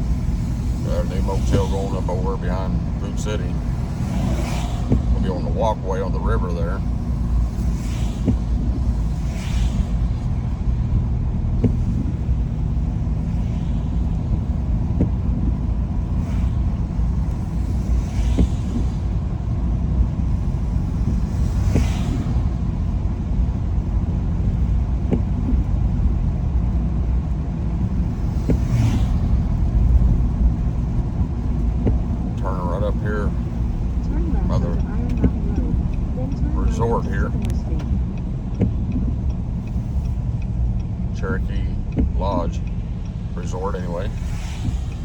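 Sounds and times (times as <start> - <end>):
car road rumble on wet road: 0.0 - 45.0
brief hiss: 21.3 - 22.5, 44.1 - 45.0.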